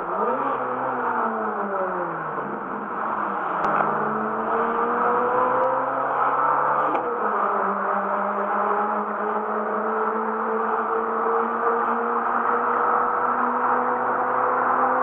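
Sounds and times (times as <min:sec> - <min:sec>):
car engine revving: 0:02.9 - 0:14.6.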